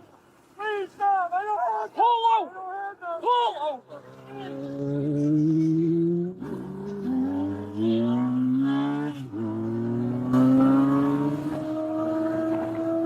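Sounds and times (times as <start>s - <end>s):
motorcycle engine accelerating: 4.3s - 13.0s.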